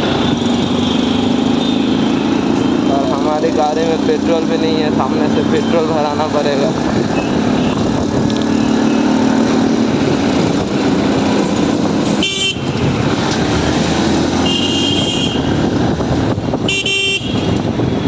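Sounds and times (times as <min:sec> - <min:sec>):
traffic rumble and road noise: 0:00.0 - 0:18.0
vehicle horns honking: 0:05.4 - 0:07.9, 0:12.1 - 0:12.7, 0:14.4 - 0:15.5, 0:16.6 - 0:17.7.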